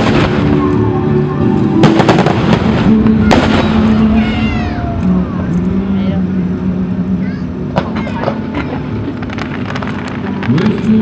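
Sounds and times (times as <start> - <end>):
fireworks bangs: 0.0 - 5.4, 7.7 - 11.0
music playing: 0.0 - 11.0.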